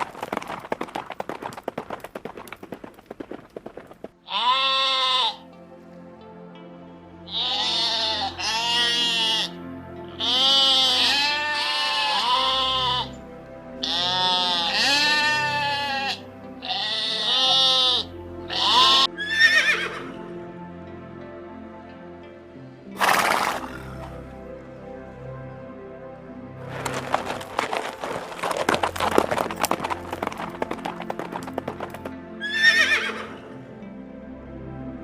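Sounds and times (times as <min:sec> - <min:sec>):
background music: 0:00.0 - 0:35.0
sheep bleating: 0:04.2 - 0:05.4, 0:07.3 - 0:13.2, 0:13.8 - 0:20.0
horse whinnying: 0:04.3 - 0:05.4, 0:07.3 - 0:09.5, 0:10.2 - 0:13.2, 0:13.8 - 0:20.2, 0:23.0 - 0:24.2, 0:32.4 - 0:33.4.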